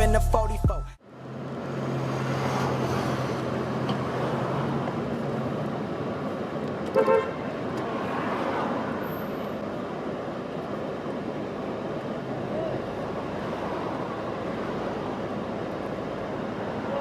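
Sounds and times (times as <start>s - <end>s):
street traffic hum: 0.0s - 17.0s
car horn toot: 6.9s - 7.4s.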